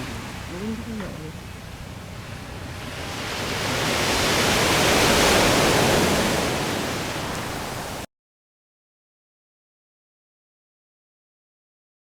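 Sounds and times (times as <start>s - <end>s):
broad rushing noise: 0.0s - 8.1s.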